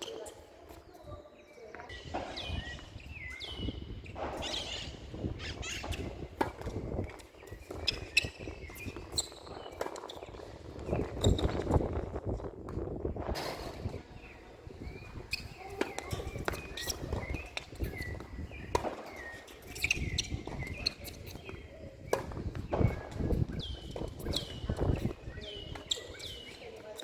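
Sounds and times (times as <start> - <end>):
footsteps on tennis court: 0.0 - 27.0
short high shoe squeaks: 2.0 - 6.5, 7.1 - 10.3, 11.1 - 11.6, 14.9 - 21.6, 22.8 - 27.0
ball bouncing: 15.3 - 25.1.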